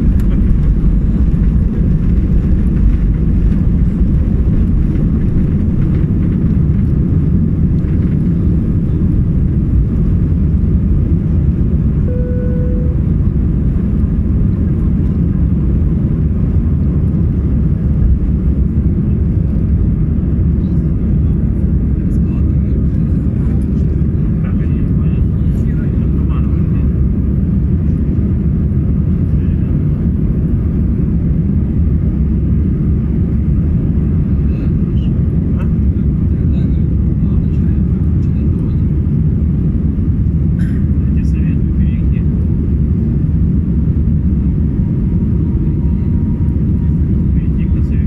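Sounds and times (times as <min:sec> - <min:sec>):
airplane engines rumbling: 0:00.0 - 0:48.0
short single tone: 0:12.0 - 0:13.2.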